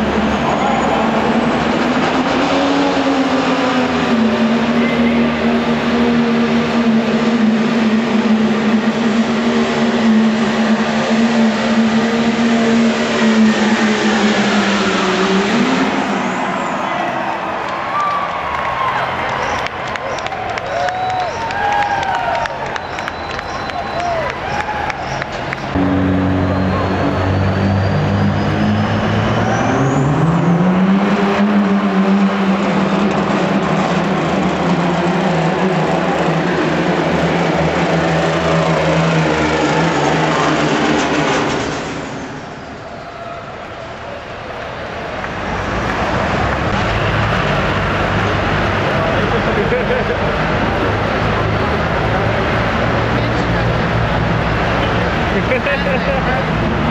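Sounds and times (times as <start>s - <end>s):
diesel truck engine revving high: 0.0s - 56.9s
thin high whistle: 26.2s - 30.0s.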